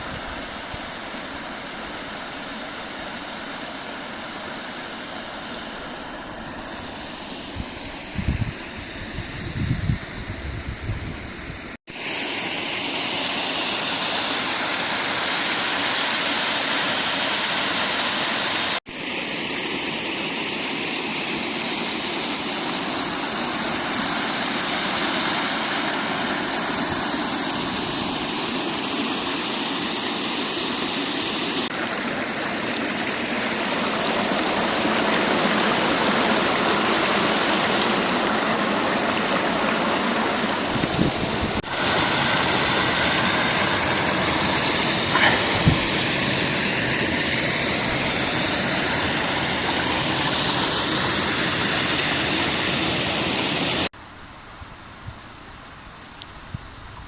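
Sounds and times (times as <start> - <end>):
stream and waterfall rushing: 0.0 - 57.0
low wind rumble on microphone: 7.5 - 11.8, 40.7 - 41.6.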